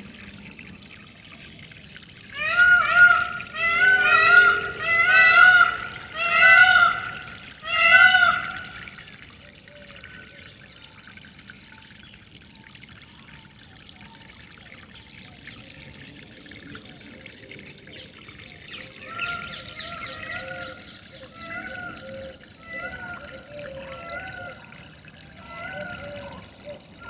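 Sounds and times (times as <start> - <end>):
water trickling: 0.0 - 27.0
loud ringing bird call: 2.4 - 8.8.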